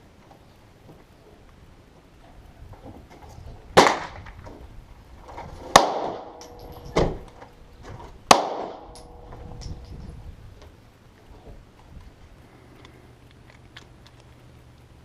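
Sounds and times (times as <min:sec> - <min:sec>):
gunshots with echo: 0:05.7 - 0:07.3, 0:08.3 - 0:09.7.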